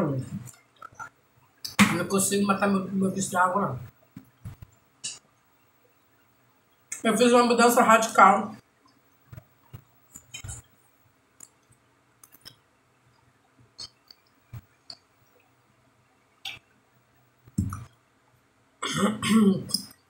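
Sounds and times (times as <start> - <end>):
wet mouth clicks chewing: 13.8 - 14.3.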